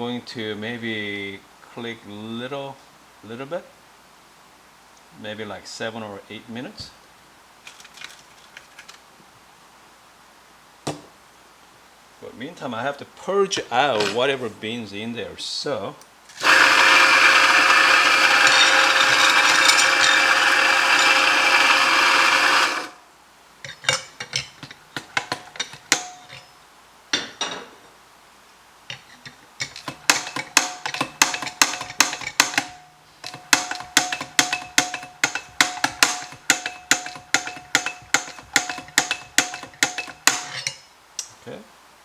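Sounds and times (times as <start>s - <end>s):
coffee grinder motor running: 16.4s - 23.0s, 33.5s - 40.1s.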